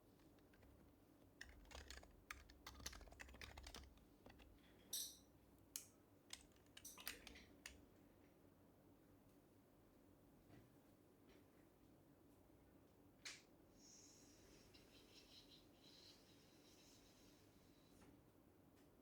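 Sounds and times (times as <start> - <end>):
soft keyboard keystrokes: 0.0 - 5.1, 5.8 - 7.8.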